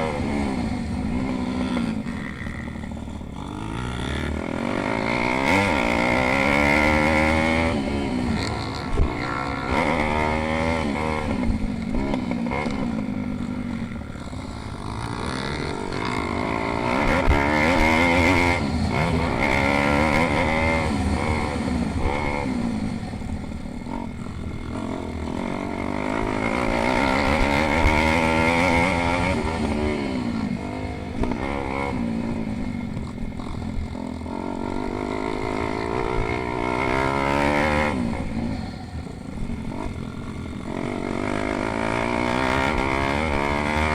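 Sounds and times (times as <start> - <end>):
pit bike engines revving: 0.0 - 43.9.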